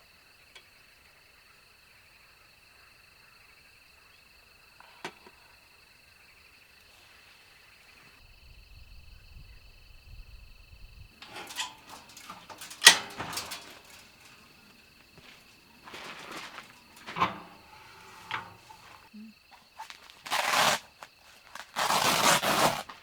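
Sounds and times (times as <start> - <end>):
crickets trilling: 0.7 - 23.0.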